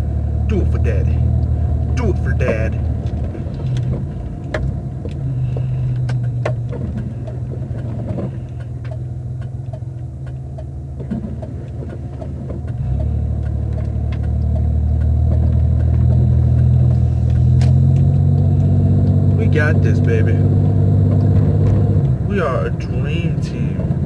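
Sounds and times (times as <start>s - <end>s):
car engine and road noise: 0.0s - 24.0s
faint ticks: 2.8s - 19.4s.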